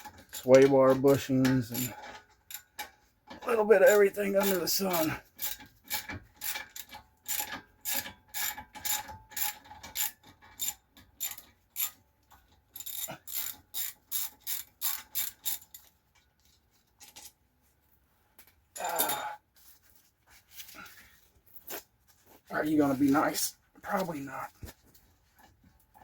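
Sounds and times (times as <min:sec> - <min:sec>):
ratchet wrench clicking: 0:05.4 - 0:12.0, 0:12.8 - 0:15.9.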